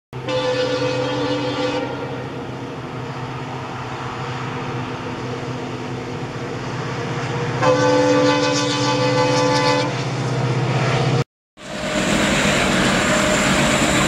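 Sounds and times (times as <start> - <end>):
train horn blast: 0.2 - 2.4, 7.2 - 10.1
passing train rumble: 0.2 - 14.0.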